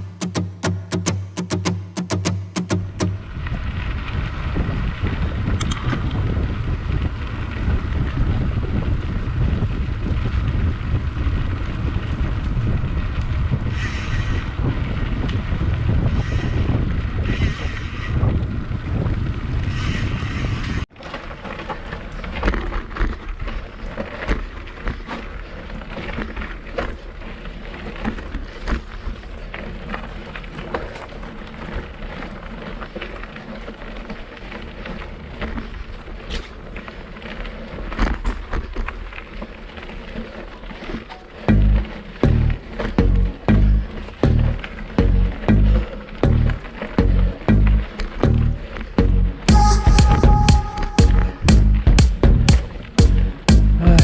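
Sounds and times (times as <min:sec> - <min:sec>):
wind buffeting microphone: 0:02.9 - 0:20.9
bike rattling over rough trail: 0:03.1 - 0:50.5, 0:51.4 - 0:54.0.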